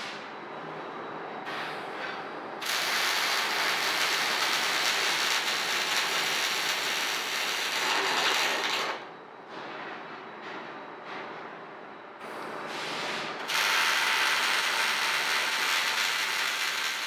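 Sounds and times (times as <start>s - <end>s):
welding arc buzzing: 2.6s - 8.9s, 13.5s - 17.0s.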